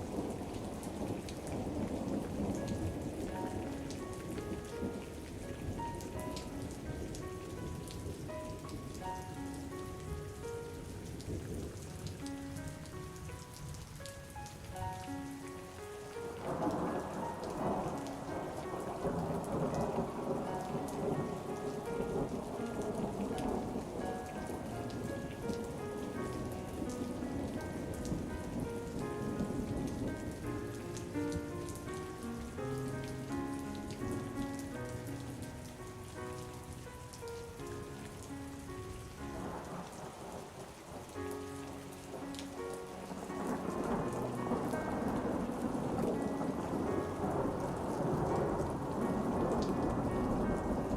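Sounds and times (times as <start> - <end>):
rolling thunder: 0.0 - 9.3, 16.4 - 32.5, 43.1 - 50.9
soft slow melody: 0.0 - 50.9
steady rain: 0.0 - 50.9.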